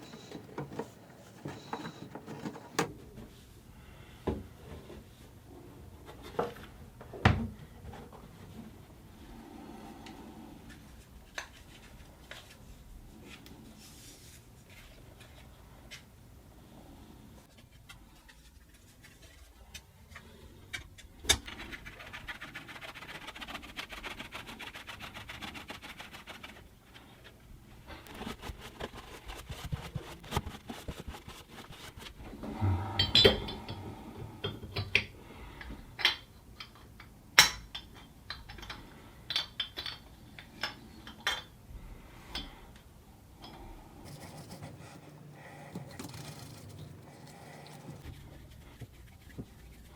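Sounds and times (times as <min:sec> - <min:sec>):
metal drain parts clinking: 0:00.0 - 0:02.9, 0:44.6 - 0:48.0.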